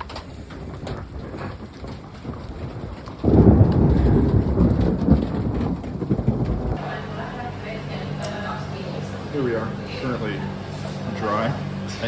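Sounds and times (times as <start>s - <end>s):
low rumble of thunder: 0.0s - 7.0s
rain falling: 0.0s - 7.0s.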